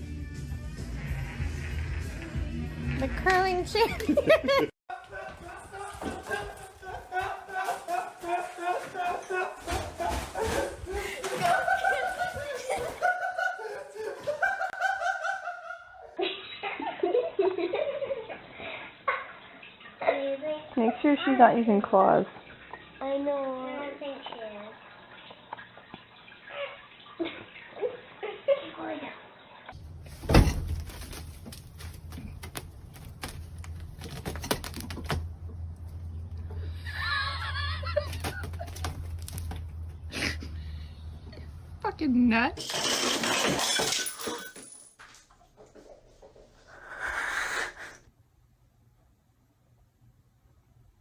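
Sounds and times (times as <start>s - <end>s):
low steady hum: 29.8s - 42.5s.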